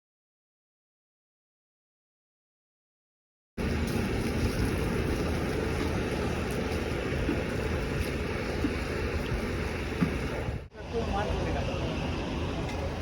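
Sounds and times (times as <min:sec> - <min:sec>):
bus engine and road noise: 0:03.6 - 0:13.0.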